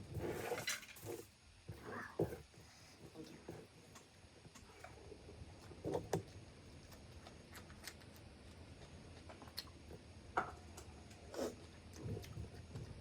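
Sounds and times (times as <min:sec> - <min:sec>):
sharp clicks of eating: 0:05.6 - 0:10.0.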